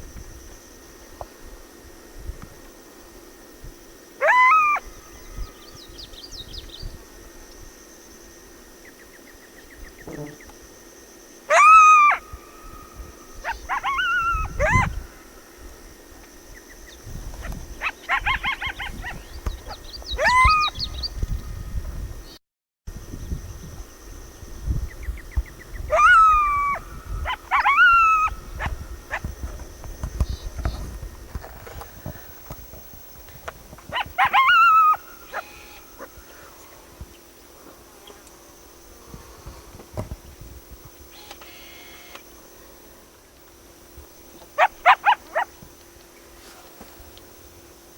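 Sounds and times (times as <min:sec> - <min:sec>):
coyote yipping: 0:04.2 - 0:05.5, 0:11.5 - 0:15.0, 0:17.8 - 0:21.0, 0:25.9 - 0:29.3, 0:33.9 - 0:36.5, 0:44.6 - 0:45.6
coyote howling: 0:04.2 - 0:05.6, 0:11.5 - 0:15.4, 0:17.8 - 0:19.3, 0:20.1 - 0:21.0, 0:25.9 - 0:29.3, 0:33.9 - 0:36.8, 0:44.6 - 0:45.6.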